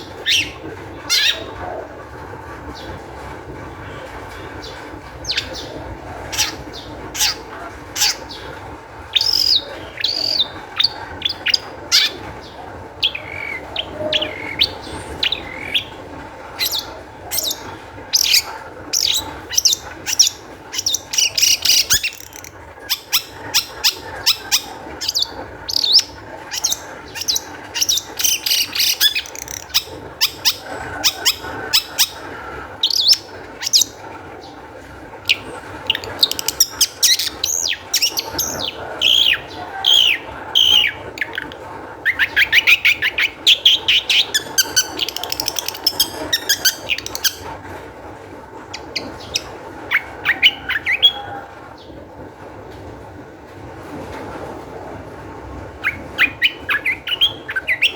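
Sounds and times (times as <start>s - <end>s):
bird singing sharp chips: 18.2s - 32.2s, 42.2s - 47.4s.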